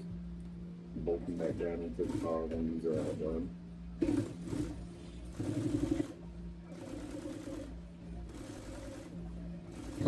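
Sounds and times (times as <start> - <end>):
motor hum: 0.0 - 10.0
sewing machine stitching: 1.4 - 3.4, 4.0 - 10.0.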